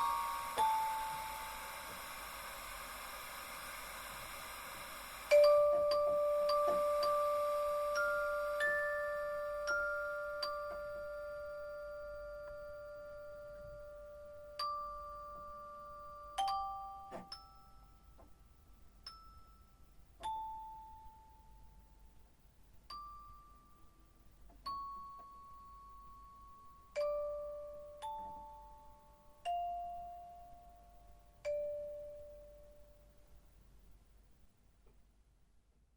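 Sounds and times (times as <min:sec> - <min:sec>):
bell-like chime tones: 0:00.0 - 0:02.0, 0:05.3 - 0:18.0.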